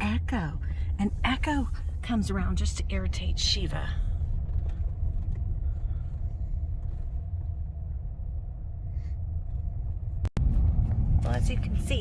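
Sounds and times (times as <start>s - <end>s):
car rumble inside cabin: 0.0s - 12.0s.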